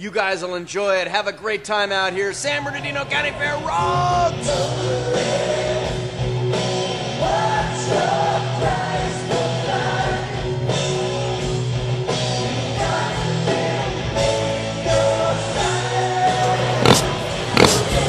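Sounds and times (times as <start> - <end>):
bass guitar: 2.9 - 18.0
steady drum beat: 16.8 - 18.0.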